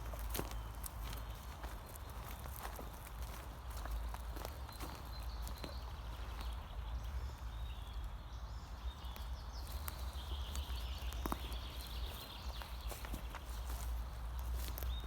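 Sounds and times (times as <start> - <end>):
footsteps crunching on dry leaves: 0.0 - 6.6, 9.6 - 15.0.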